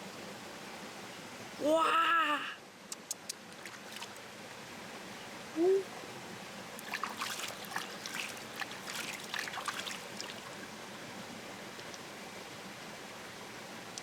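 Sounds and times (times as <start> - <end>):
small splashes and clicks: 2.9 - 4.3, 6.8 - 10.6, 11.8 - 12.0
river water trickling: 2.9 - 5.5, 6.3 - 14.0.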